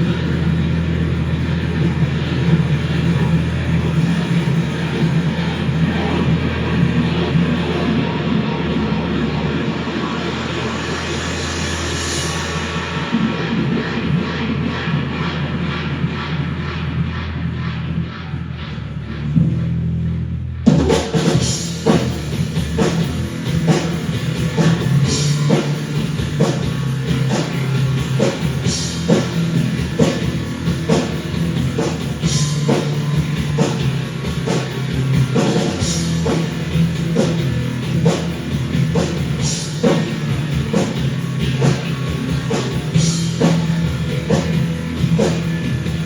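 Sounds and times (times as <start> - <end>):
rock music with drums and guitar: 20.7 - 46.0.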